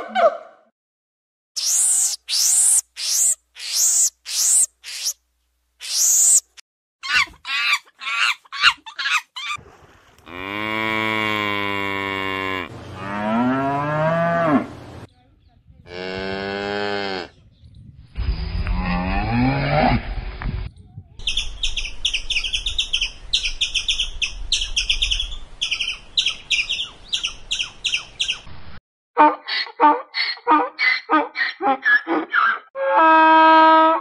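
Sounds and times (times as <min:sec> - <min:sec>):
high chirps: 0:01.6 - 0:05.2, 0:05.8 - 0:06.6
squeaky calls: 0:01.6 - 0:05.2, 0:05.8 - 0:09.6, 0:29.2 - 0:32.7
cow mooing: 0:10.3 - 0:14.7.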